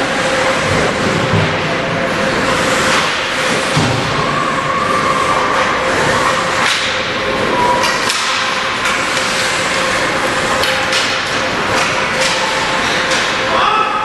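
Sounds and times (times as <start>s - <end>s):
skates and arena din: 0.0s - 14.0s
hockey sticks cracking on puck: 7.7s - 13.6s.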